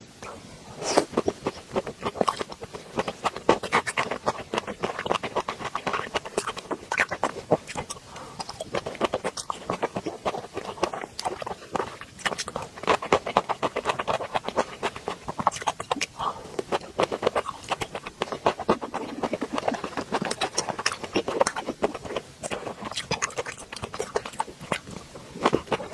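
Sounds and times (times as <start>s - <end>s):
person chewing: 0.2s - 25.9s.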